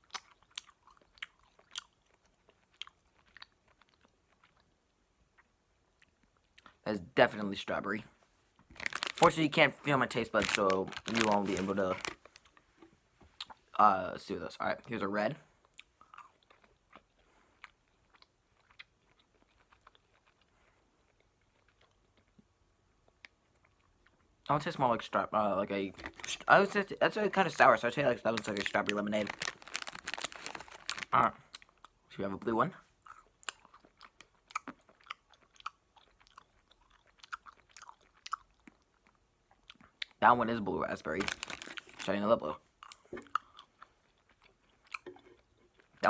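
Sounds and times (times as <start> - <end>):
person chewing candy: 0.0 - 6.8, 8.7 - 12.7, 15.6 - 24.5, 26.0 - 26.5, 28.2 - 32.1, 33.0 - 40.2, 41.2 - 42.2, 42.8 - 46.0.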